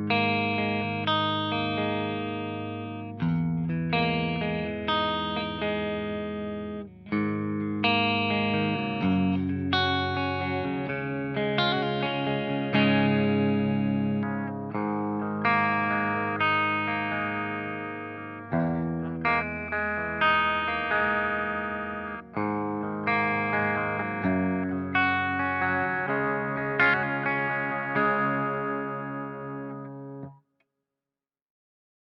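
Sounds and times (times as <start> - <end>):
electric guitar chords ringing: 0.0 - 30.3.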